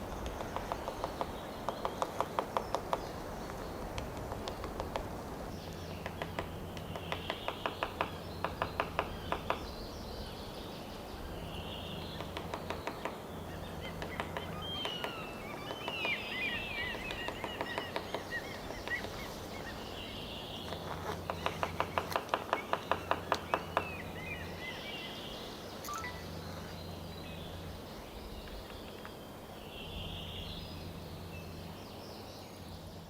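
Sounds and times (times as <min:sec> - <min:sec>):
songbird singing: 0:00.0 - 0:33.0
woodpecker drumming on wood: 0:00.1 - 0:05.2, 0:06.0 - 0:09.7, 0:12.1 - 0:19.3, 0:20.7 - 0:24.0.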